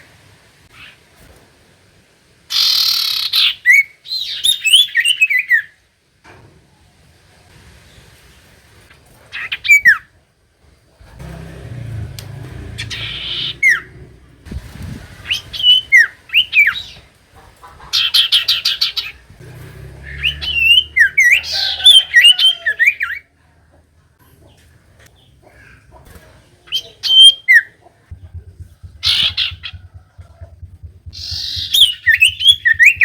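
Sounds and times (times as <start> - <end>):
bird whistling and trilling: 20.1 - 22.7, 31.1 - 33.0
low rumble: 28.1 - 33.0.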